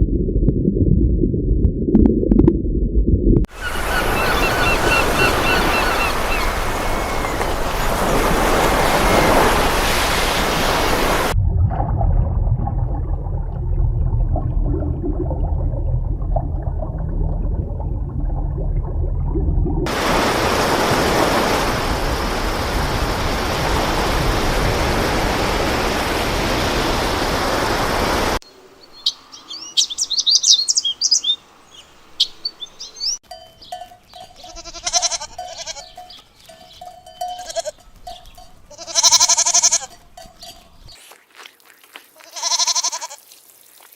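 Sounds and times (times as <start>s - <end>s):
low rumble: 0.0s - 3.5s, 11.4s - 19.9s
birds chirping: 3.5s - 11.3s, 28.5s - 39.2s, 39.8s - 41.1s
livestock bleating: 34.4s - 36.0s, 37.2s - 37.8s, 38.7s - 40.0s, 42.2s - 43.2s.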